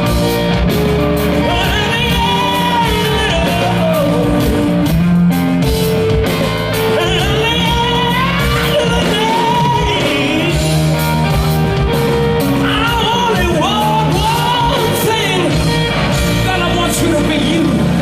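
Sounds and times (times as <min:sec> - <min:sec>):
live rock band playing: 0:00.0 - 0:18.0
man singing: 0:01.4 - 0:04.9, 0:06.9 - 0:11.0, 0:12.6 - 0:18.0.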